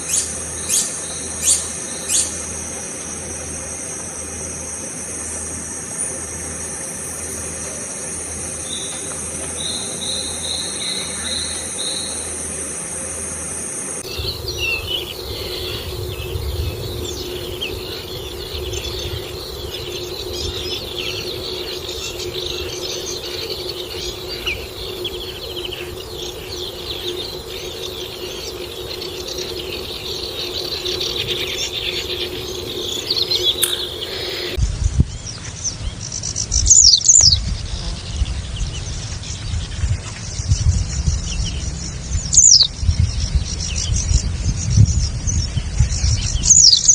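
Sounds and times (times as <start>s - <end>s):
insects trilling: 0.0s - 34.6s
steady low hum: 0.0s - 46.5s
chorus of birds chirping: 0.0s - 46.9s
bird repeating notes: 14.0s - 34.6s.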